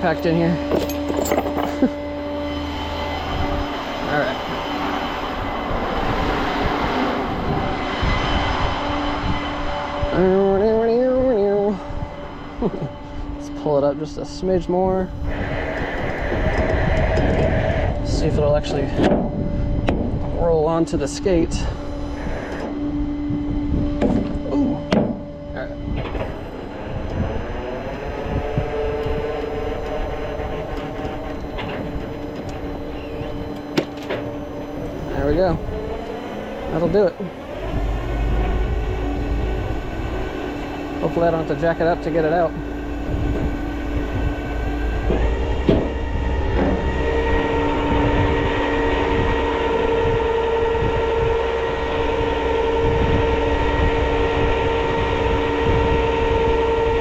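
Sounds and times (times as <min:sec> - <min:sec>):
tow truck engine and winch: 0:00.0 - 0:57.0
metal clanks: 0:00.6 - 0:01.9.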